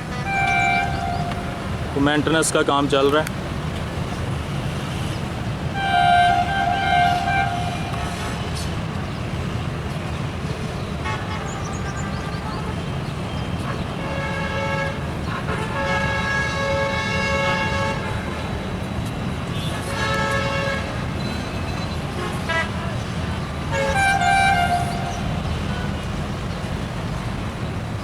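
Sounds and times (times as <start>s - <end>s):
train horn blasts: 0.0s - 2.4s, 5.0s - 9.5s, 10.9s - 26.4s
passing train rumble: 0.0s - 28.0s.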